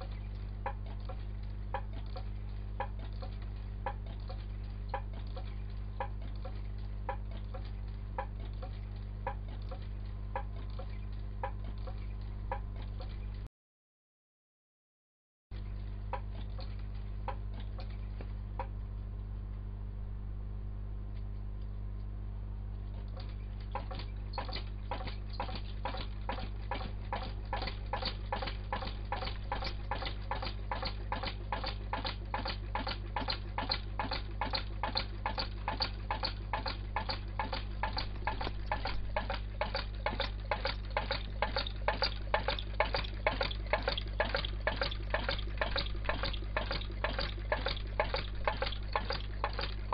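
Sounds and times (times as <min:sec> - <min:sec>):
steady low hum: 0:00.0 - 0:13.5, 0:15.6 - 0:49.9
engine flywheel clicking: 0:23.1 - 0:49.9.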